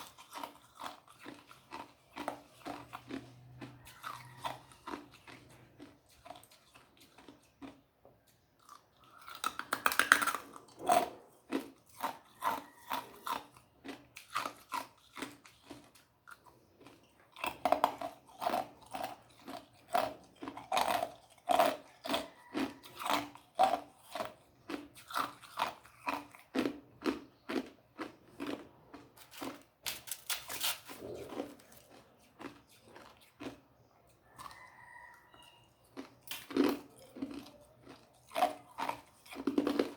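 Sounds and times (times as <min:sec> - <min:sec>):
person crunching ice: 0:22.5 - 0:33.6, 0:36.0 - 0:39.9.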